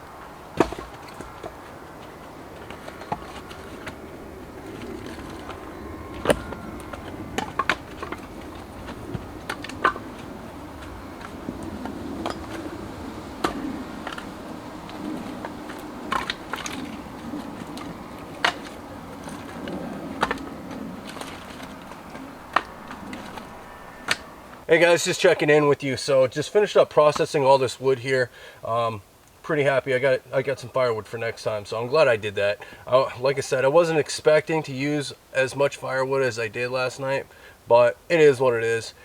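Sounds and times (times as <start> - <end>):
low steady hum: 0.0 - 24.9
firewood chopping knocks: 0.6 - 1.6, 13.4 - 14.3.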